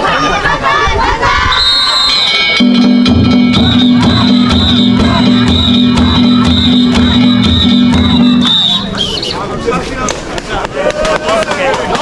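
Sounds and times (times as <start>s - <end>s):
voices: 0.0s - 12.0s
music with steady beat: 2.6s - 9.0s.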